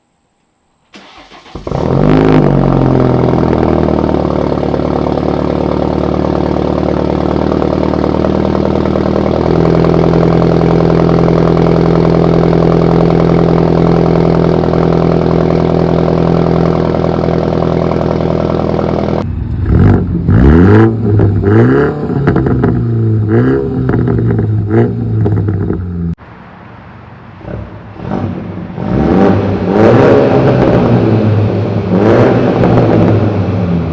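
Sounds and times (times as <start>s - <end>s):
car engine cranking and starting: 0.9s - 26.2s
car engine idling: 0.9s - 28.6s
car engine revving: 1.0s - 26.2s, 27.4s - 33.9s.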